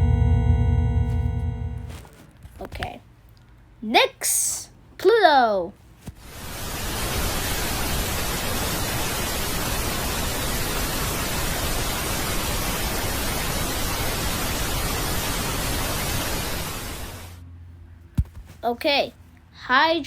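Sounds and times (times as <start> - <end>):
static hiss: 6.1 - 17.4.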